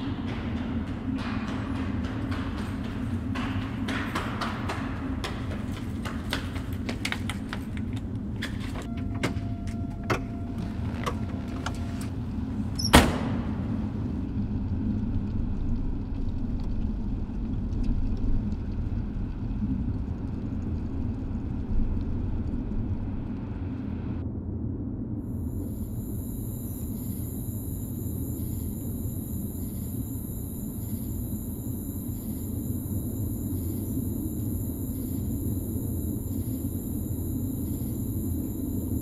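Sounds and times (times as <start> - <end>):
faint steady tone: 25.3 - 39.0.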